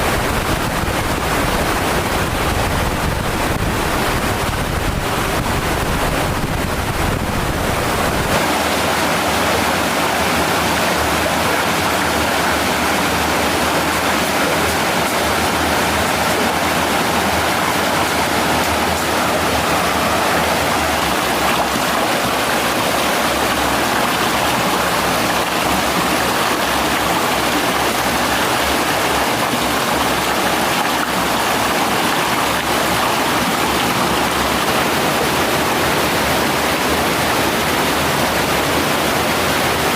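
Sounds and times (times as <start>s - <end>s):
wind rumble on microphone: 0.0s - 8.4s
stream water rushing: 0.0s - 39.9s.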